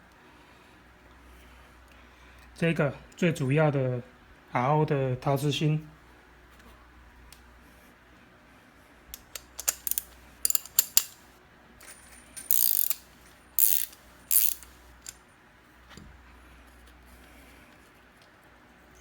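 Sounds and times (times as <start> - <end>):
sharp metal clicks: 9.1 - 15.2.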